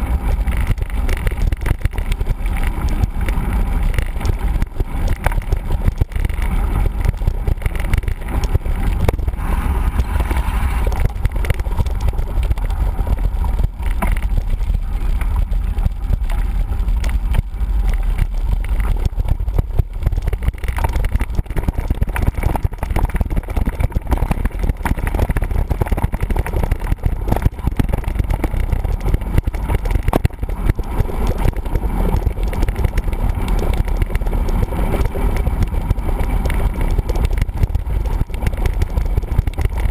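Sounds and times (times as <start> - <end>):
bike rattling and knocking: 0.0 - 39.9
wind rumble on microphone: 0.0 - 39.9.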